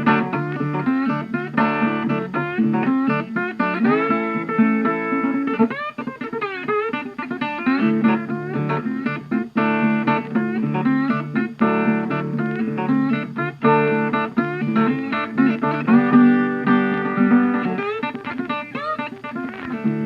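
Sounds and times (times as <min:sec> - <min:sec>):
guitar plucked and strummed: 0:00.0 - 0:20.0.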